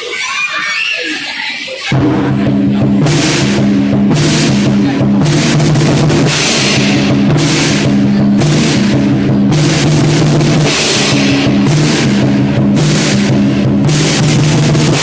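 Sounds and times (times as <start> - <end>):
cymbals crashing: 1.9 - 15.0
large drum beating: 1.9 - 15.0.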